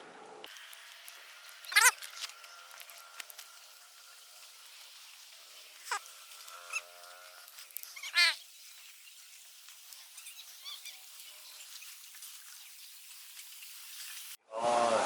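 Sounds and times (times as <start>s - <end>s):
loud bird warbling call: 1.7s - 2.0s, 8.0s - 8.4s
faint bird chirps: 7.9s - 9.4s, 10.0s - 12.9s.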